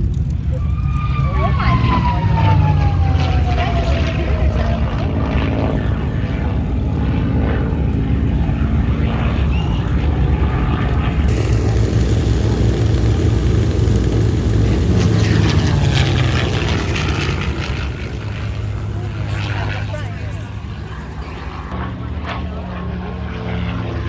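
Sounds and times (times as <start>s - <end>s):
propeller airplane engine: 0.0s - 24.0s.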